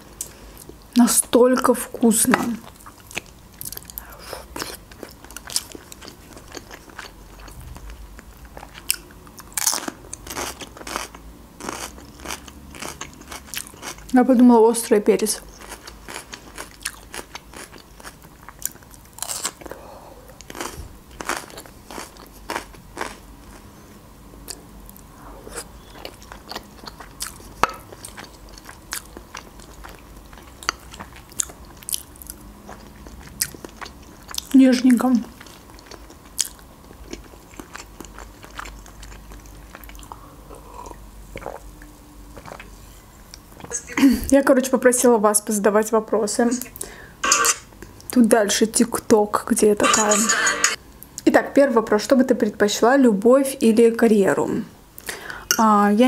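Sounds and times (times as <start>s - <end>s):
chewing with wet mouth clicks: 2.6s - 14.2s, 15.5s - 19.7s, 25.6s - 34.6s, 35.4s - 40.2s
fork clinking on glass dish: 47.3s - 47.6s, 49.8s - 50.8s.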